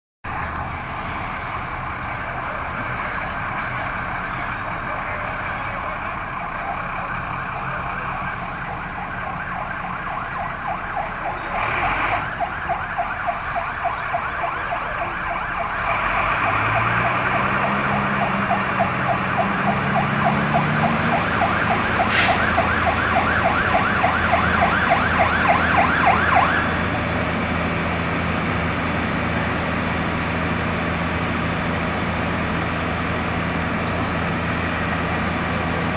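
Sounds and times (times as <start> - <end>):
siren warbling: 6.2 - 27.4.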